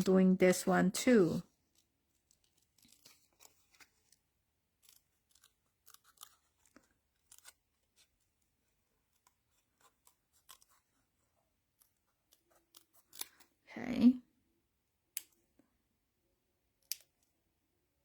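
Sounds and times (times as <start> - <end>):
scissors snipping cardstock: 4.8 - 8.1, 11.8 - 13.5.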